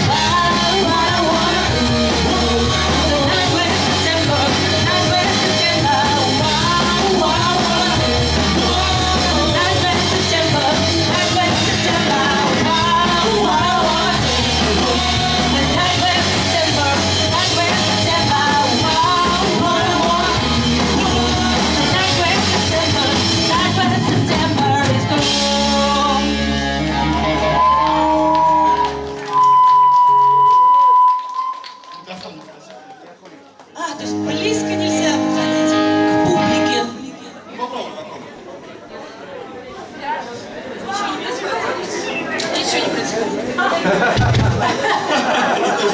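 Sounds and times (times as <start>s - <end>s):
pop-punk band playing live: 0.0s - 29.6s, 34.0s - 37.0s, 43.8s - 45.9s.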